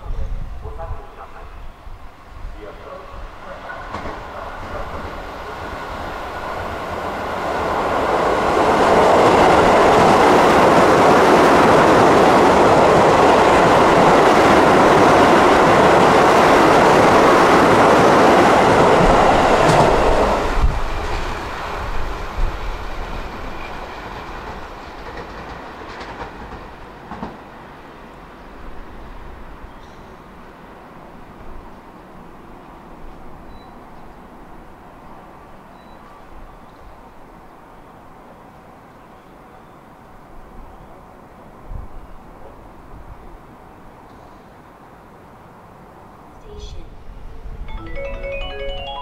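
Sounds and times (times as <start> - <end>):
electric train rumbling past: 0.0 - 39.0.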